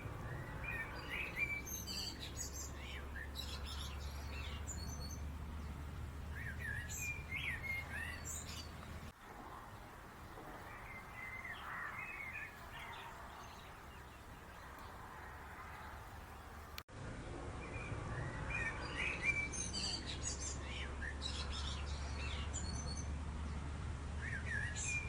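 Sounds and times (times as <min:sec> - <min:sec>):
birds chirping: 0:00.0 - 0:16.8
steady low background noise: 0:00.0 - 0:25.0.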